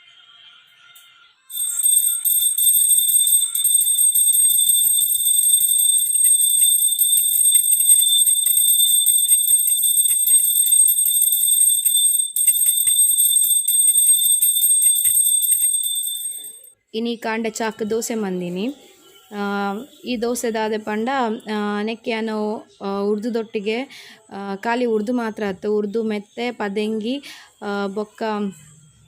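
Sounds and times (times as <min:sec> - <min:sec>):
hand bell ringing: 0:01.5 - 0:16.7.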